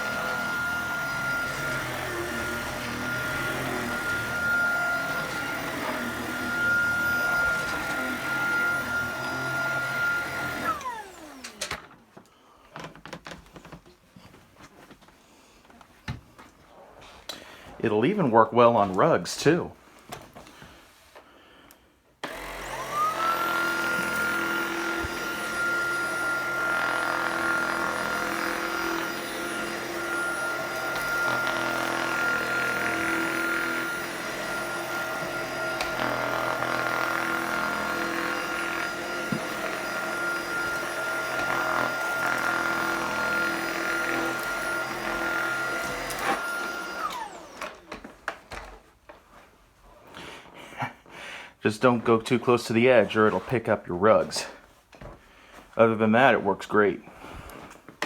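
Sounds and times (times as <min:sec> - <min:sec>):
stick vacuum motor whining: 0:00.0 - 0:12.0, 0:22.2 - 0:48.8.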